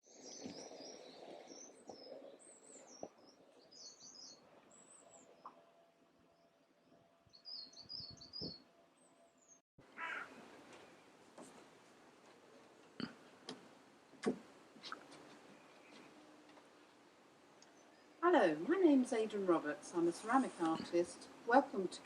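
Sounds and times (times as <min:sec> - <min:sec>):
small birds chirping: 0:00.0 - 0:05.6, 0:07.3 - 0:08.7.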